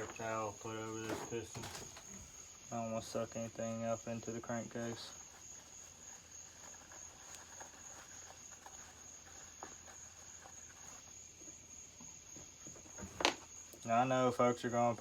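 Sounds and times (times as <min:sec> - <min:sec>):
handling taps and rustles: 0:00.0 - 0:02.4, 0:09.5 - 0:13.9.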